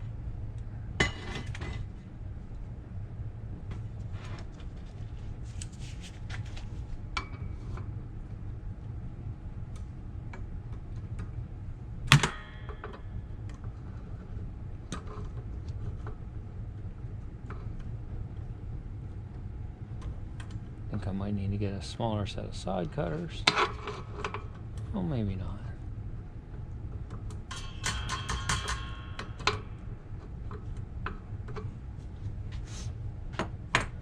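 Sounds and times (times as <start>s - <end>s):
hand tools tapping on steel: 27.5s - 29.6s
loud ringing metallic clank: 27.5s - 29.8s.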